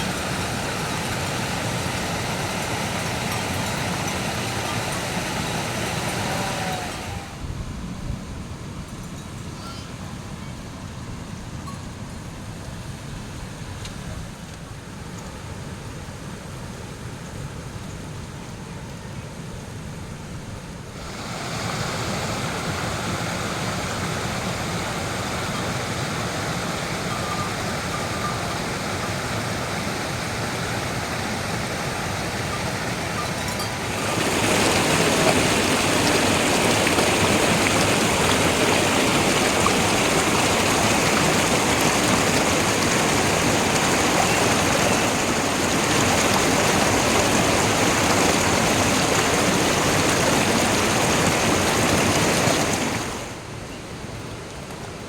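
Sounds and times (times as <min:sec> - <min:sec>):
water rushing: 0:00.0 - 0:07.6, 0:20.9 - 0:54.7.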